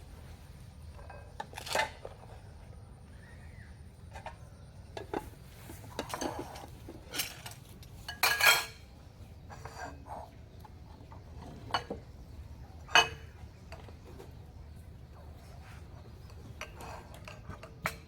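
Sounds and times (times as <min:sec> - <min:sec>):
dishes and utensils clattering: 0:00.9 - 0:02.5, 0:04.1 - 0:14.8, 0:15.4 - 0:18.0.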